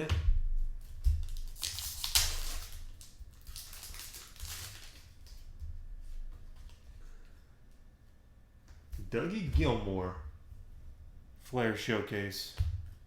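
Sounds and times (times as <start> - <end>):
trading cards rustling: 1.2 - 5.4.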